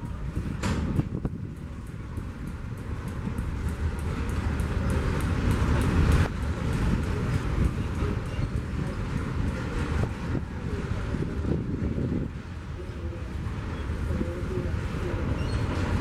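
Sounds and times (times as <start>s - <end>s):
light clicks of train wheels: 0.0s - 11.2s
freight train rumbling on rails: 0.0s - 16.0s.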